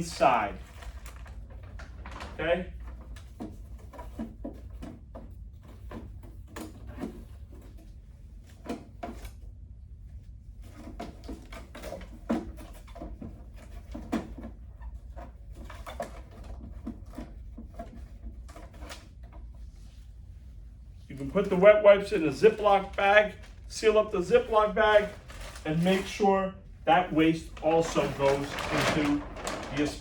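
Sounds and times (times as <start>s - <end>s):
low steady hum: 14.6s - 30.0s.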